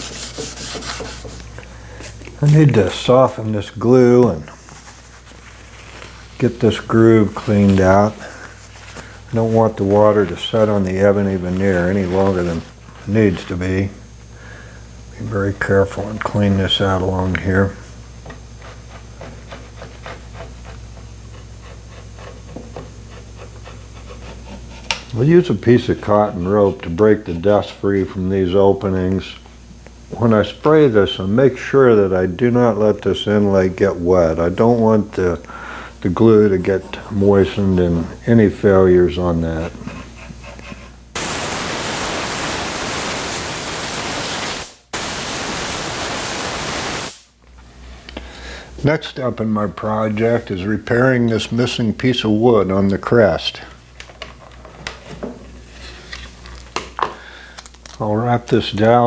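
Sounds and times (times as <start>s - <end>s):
compressed air hissing from nozzle: 41.2s - 47.4s.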